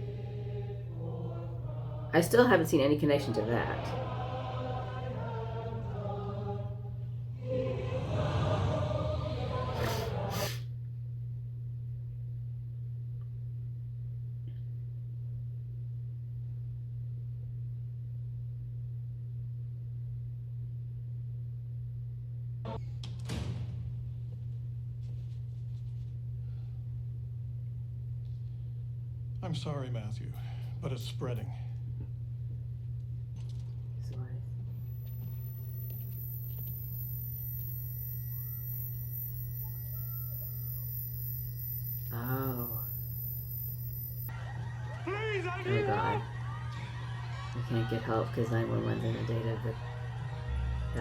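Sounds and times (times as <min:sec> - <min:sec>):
steady low-pitched hum: 0:00.0 - 0:51.0
faint gliding tones: 0:34.8 - 0:44.3.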